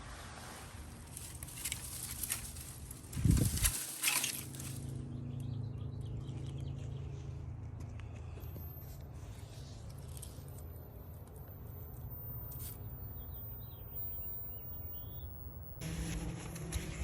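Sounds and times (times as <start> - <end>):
low outdoor rumble: 0.0 - 17.0
wide sound with low hum: 0.0 - 17.0
faint bird chirps: 8.4 - 15.7.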